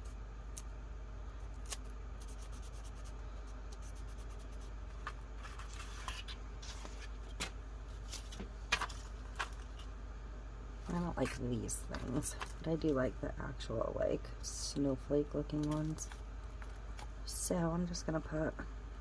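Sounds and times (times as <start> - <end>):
faint low hum: 0.0 - 19.0
paper rustling: 4.9 - 9.9.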